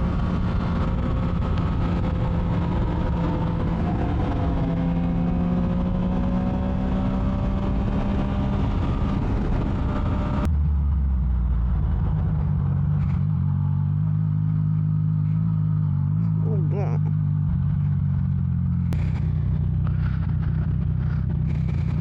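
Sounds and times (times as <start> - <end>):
wind rush: 0.0 - 10.5
low engine drone: 0.0 - 22.0
motorcycle engine running: 0.0 - 22.0.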